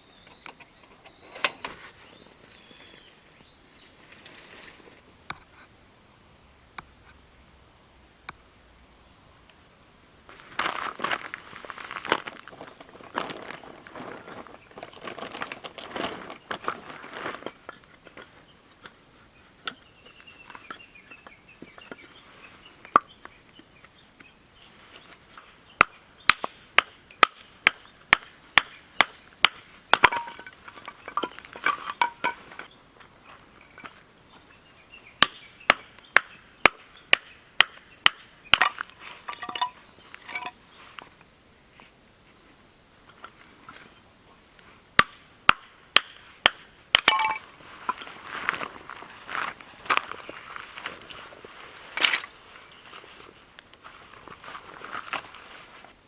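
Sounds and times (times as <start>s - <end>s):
axe chopping firewood: 25.4s - 32.4s, 35.2s - 40.6s, 45.0s - 47.5s.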